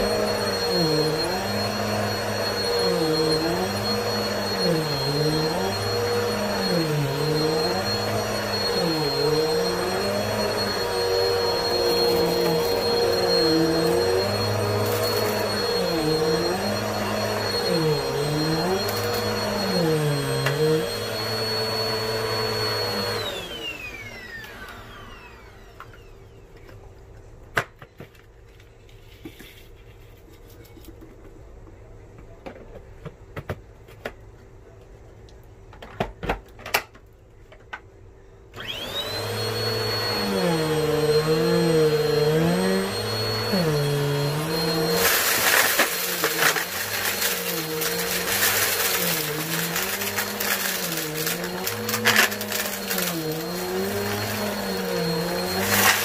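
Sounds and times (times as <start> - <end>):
vacuum cleaner running: 0.0 - 26.7, 38.5 - 56.0.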